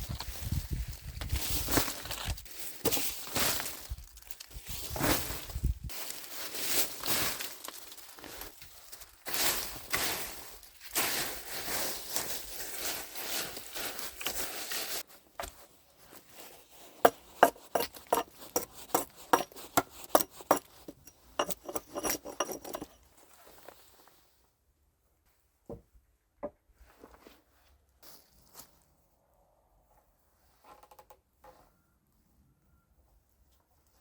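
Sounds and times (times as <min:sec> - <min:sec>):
rustling and crunching material: 0:00.0 - 0:24.4
sharp knocks and clinks: 0:17.1 - 0:23.0.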